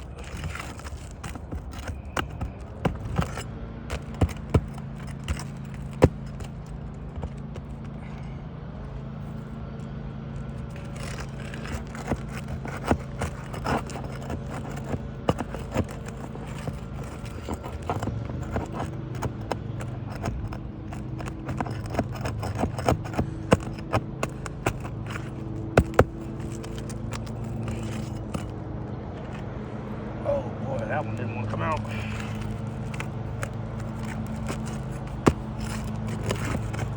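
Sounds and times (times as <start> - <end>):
tool scraping roof shingle: 0.0 - 9.8, 10.4 - 36.9
sharp knocks of prying tool: 10.8 - 28.6.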